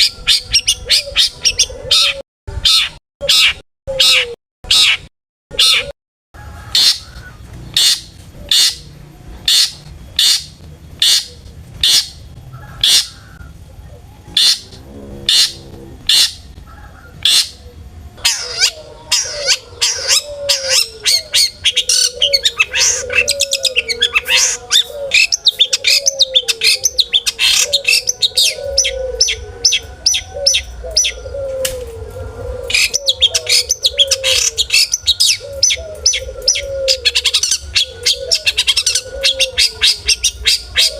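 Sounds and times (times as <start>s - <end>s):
low wavering bird note: 14.2s - 16.8s.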